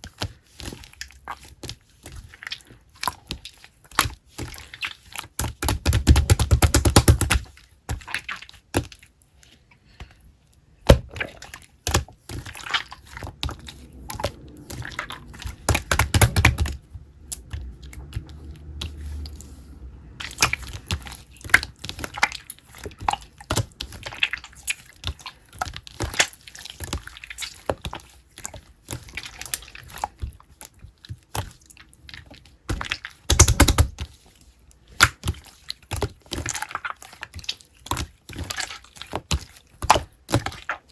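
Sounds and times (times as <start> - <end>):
clicks and taps of small objects: 32.7 - 34.0.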